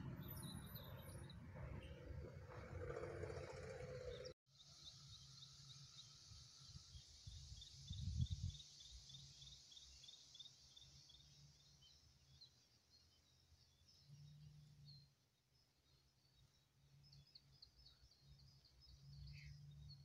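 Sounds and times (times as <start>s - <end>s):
bird chirping: 0.0s - 20.0s
wind rumble on microphone: 7.2s - 8.6s.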